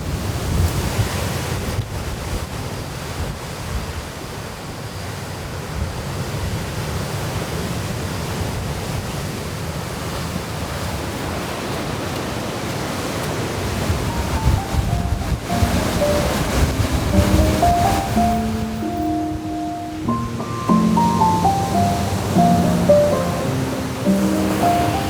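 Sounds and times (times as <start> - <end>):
sea surf washing on beach: 0.0 - 25.0
wind buffeting microphone: 11.4 - 25.0.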